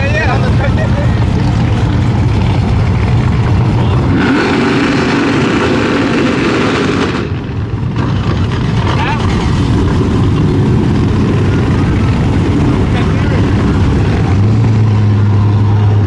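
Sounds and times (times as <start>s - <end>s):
loud vehicle engine running: 0.0s - 16.0s
higher pitched engine note: 8.1s - 16.0s.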